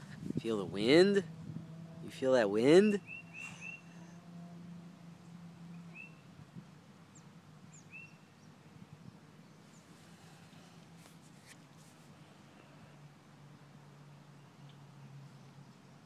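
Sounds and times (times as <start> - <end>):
short bird chirps: 3.0 - 4.0
soft rustles: 9.7 - 12.3.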